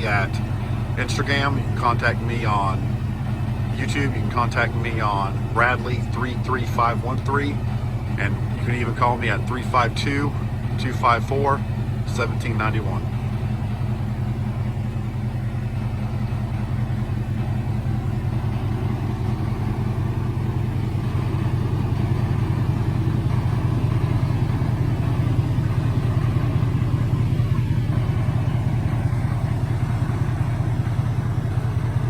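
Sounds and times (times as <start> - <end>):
pickup engine and road hum: 0.0 - 32.0.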